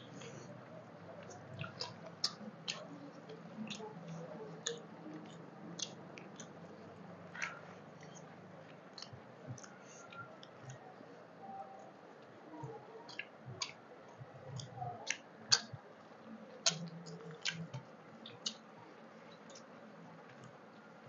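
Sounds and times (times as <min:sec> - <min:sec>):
chewing food: 0:00.0 - 0:21.0
wet mouth clicks: 0:01.2 - 0:06.6, 0:08.9 - 0:10.8, 0:13.1 - 0:13.8, 0:14.5 - 0:15.8, 0:16.6 - 0:18.7.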